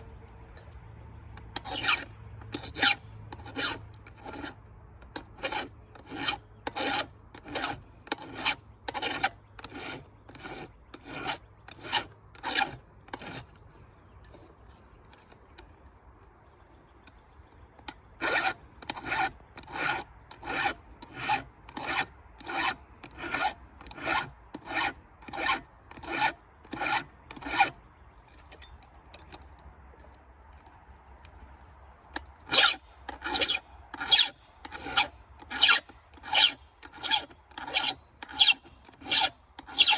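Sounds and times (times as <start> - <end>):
hand file rasping on chain: 1.4 - 13.6, 18.2 - 27.8, 32.4 - 39.9.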